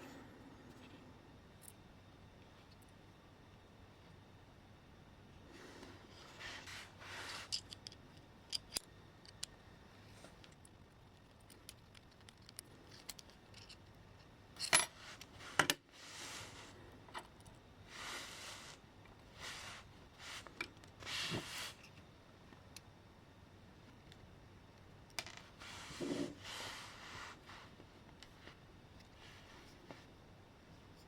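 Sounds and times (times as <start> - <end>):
metal parts clicking and clinking: 7.2 - 9.5, 10.4 - 15.8
rustling scrapes: 15.0 - 16.8, 17.9 - 21.9, 25.6 - 27.8.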